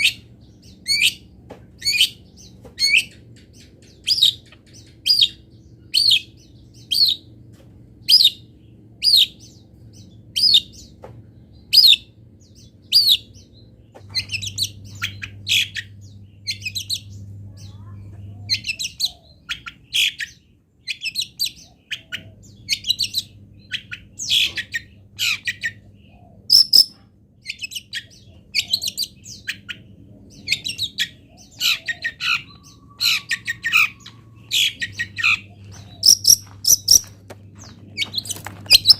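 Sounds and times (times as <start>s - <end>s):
shrike singing: 26.5s - 27.0s, 30.5s - 38.9s.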